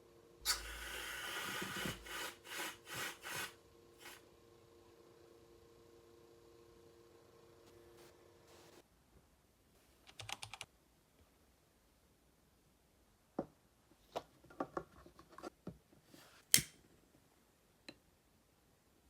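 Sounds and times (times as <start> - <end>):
typing on computer keyboard: 10.1 - 10.7.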